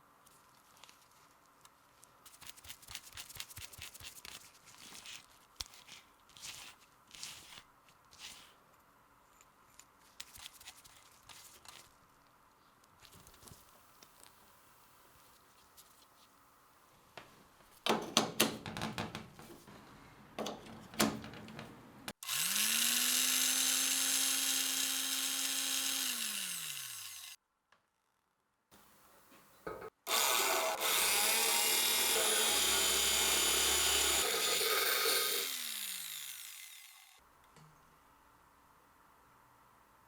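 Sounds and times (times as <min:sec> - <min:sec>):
electric drill motor whining: 0:22.2 - 0:27.4, 0:30.1 - 0:37.2.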